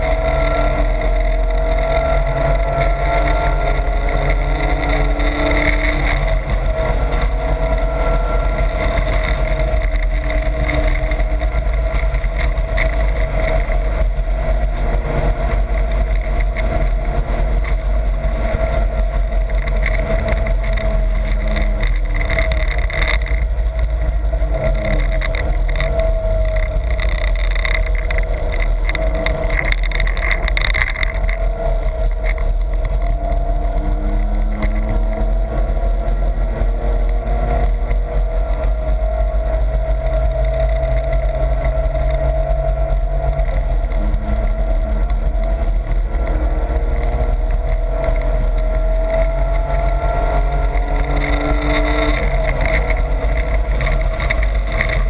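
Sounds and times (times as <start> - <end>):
car engine from inside cabin: 0.0 - 55.0.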